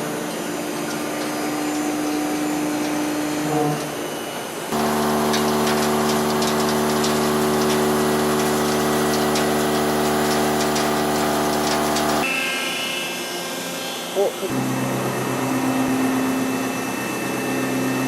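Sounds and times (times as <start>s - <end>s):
milling machine humming: 0.1s - 12.2s.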